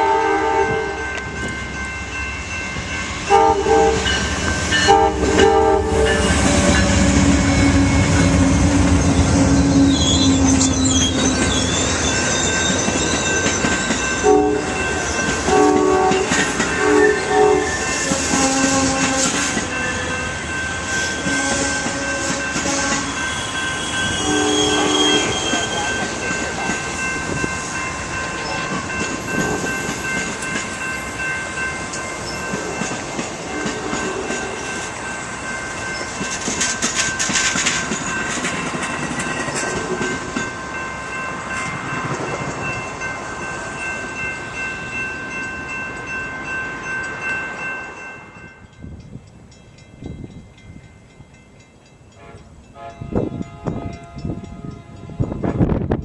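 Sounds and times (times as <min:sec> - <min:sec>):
high-pitched ringing tones: 0:06.0 - 0:15.6
train wheels clattering on rails: 0:10.3 - 0:47.6.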